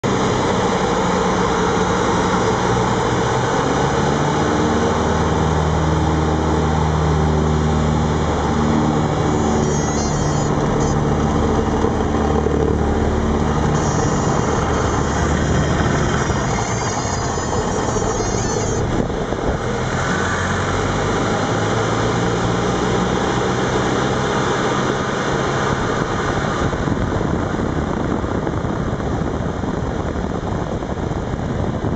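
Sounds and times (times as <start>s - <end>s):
aircraft piston engine and propeller: 0.0s - 31.9s
wind rush: 6.7s - 31.9s.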